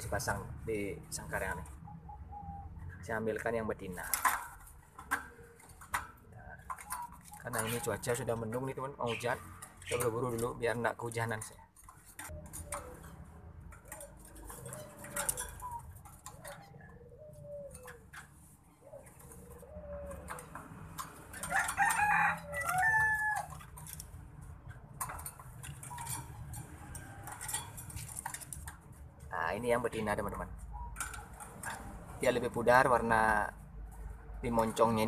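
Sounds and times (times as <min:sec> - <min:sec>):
bird clucking calls: 0:01.3 - 0:03.3, 0:04.0 - 0:10.6, 0:11.4 - 0:24.1, 0:25.0 - 0:28.8, 0:30.0 - 0:31.9
wire cage rattling: 0:03.4 - 0:17.0, 0:17.6 - 0:35.0.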